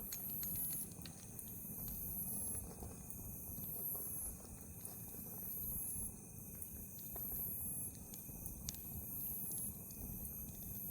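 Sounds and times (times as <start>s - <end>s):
wood fire crackling and popping: 0.0s - 10.9s.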